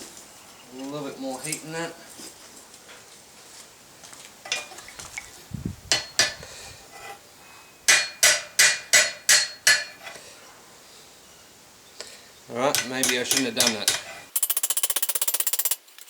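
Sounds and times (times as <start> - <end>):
hammer striking hot metal on anvil: 5.9 - 6.4, 7.9 - 10.0, 12.7 - 14.1.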